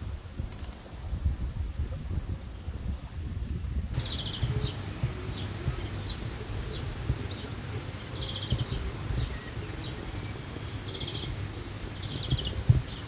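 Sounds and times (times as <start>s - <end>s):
steady low rumble: 1.4s - 13.0s
songbirds chirping: 2.4s - 13.0s
rapid bird trill: 4.0s - 13.0s.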